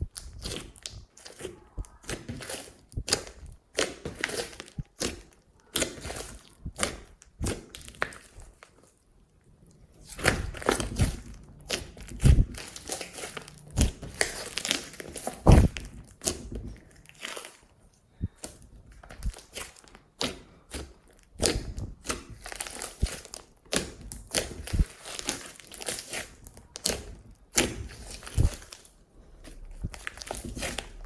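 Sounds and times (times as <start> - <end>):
slime squishing and popping: 0.0 - 8.7, 9.8 - 17.7, 18.3 - 31.0
deep thuds: 15.3 - 16.0.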